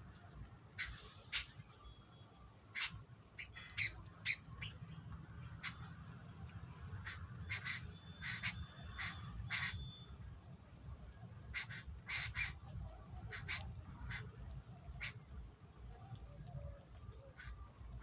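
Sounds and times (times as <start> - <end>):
birds with short harsh calls: 0.7 - 5.0, 6.9 - 10.6, 11.5 - 12.6, 13.2 - 14.3.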